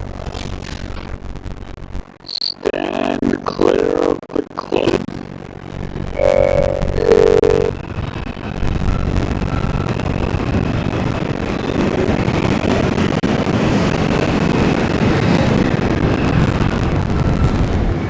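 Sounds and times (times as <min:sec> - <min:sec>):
faint high whine: 0:02.2 - 0:10.1
subway train wheels rumbling: 0:07.8 - 0:18.0.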